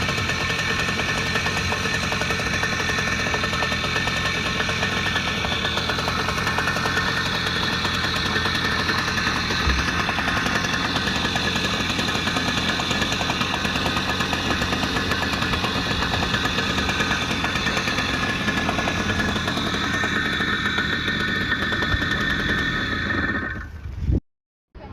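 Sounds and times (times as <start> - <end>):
motorcycle engine running: 0.0 - 24.1.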